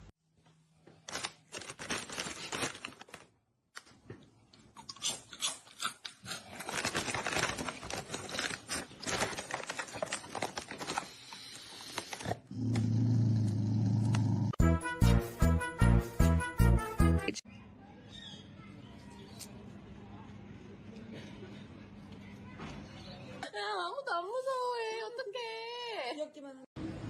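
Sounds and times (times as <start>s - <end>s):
crunching and chewing: 3.8s - 12.5s.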